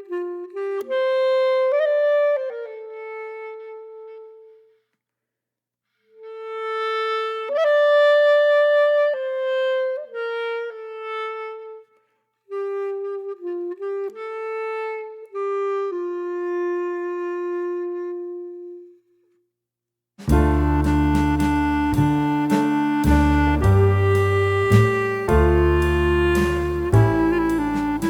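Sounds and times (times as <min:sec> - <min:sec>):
solo wind instrument melody: 0:00.0 - 0:04.7, 0:12.5 - 0:19.0, 0:20.3 - 0:28.0.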